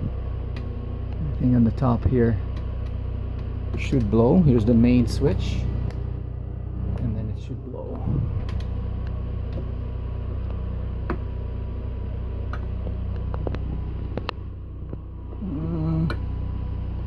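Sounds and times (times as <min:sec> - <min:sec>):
generator humming: 0:00.0 - 0:17.0.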